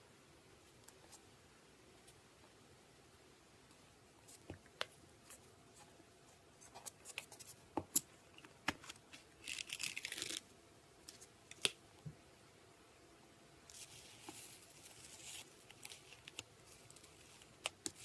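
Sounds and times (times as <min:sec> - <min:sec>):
slime crackling as stretched: 0:09.4 - 0:10.5.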